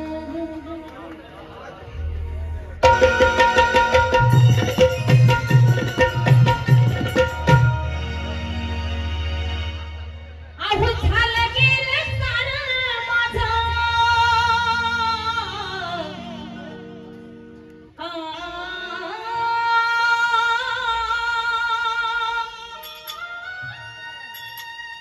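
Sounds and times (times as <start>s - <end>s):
woman singing with vibrato: 10.6s - 16.9s, 18.0s - 23.8s.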